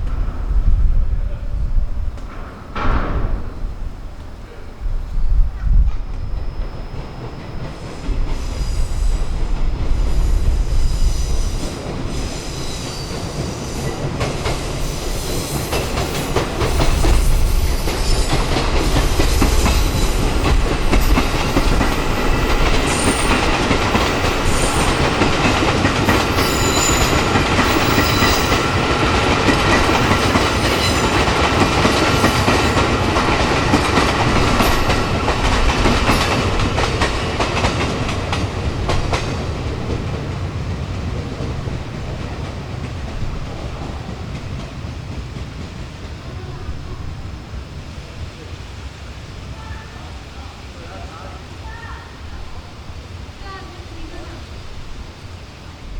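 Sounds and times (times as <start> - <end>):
train wheels clicking over rail joints: 0.0 - 46.2
high-pitched wheel squeals: 26.3 - 28.6.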